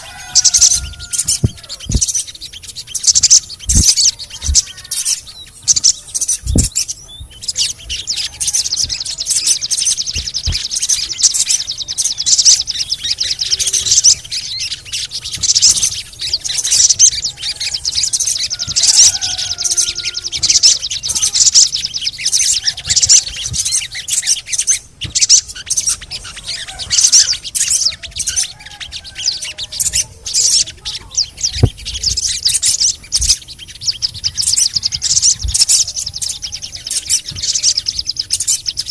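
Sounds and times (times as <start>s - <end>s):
bird chirps and trills: 0.0s - 38.9s
short low thumps: 0.6s - 2.2s, 5.7s - 7.5s.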